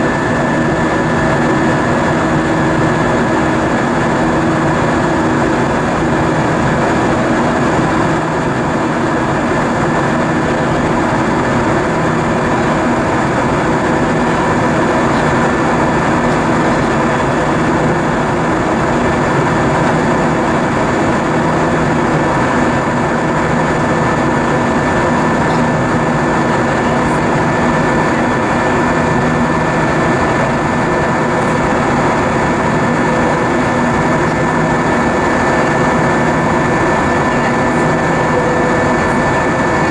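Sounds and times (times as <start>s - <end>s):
jet engines droning: 0.0s - 39.9s
steady tones: 11.5s - 39.9s.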